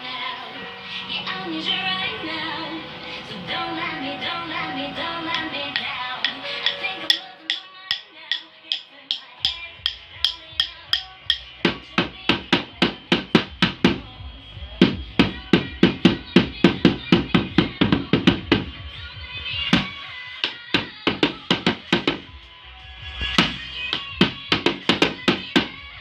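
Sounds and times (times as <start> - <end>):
recorded music playing: 0.0 - 26.0
drum beaten in a steady beat: 5.3 - 26.0.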